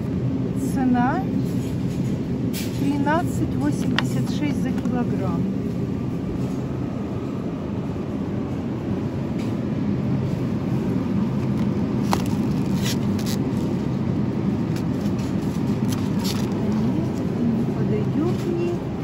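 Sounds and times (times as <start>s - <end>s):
low machinery hum: 0.0s - 19.0s
shoppers: 10.9s - 18.9s.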